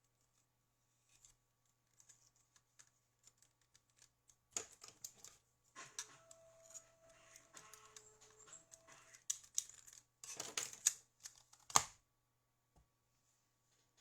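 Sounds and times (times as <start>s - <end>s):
small objects clicking and tapping: 1.9s - 11.9s.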